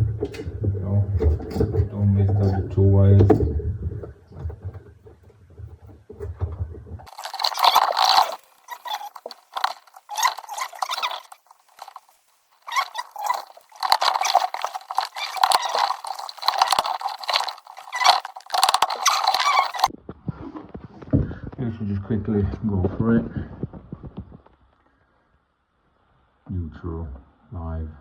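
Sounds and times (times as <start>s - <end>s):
handling noise crackling and rustling: 0.0s - 19.9s.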